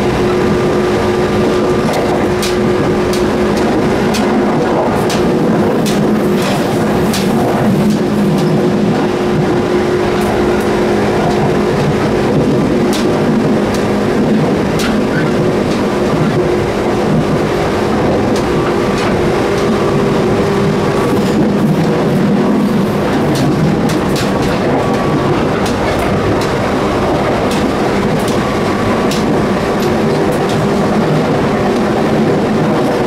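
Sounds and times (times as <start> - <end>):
electric train rumbling: 0.0 - 33.0
sharp clicks and knocks: 1.8 - 8.6, 23.1 - 28.5, 29.1 - 30.7.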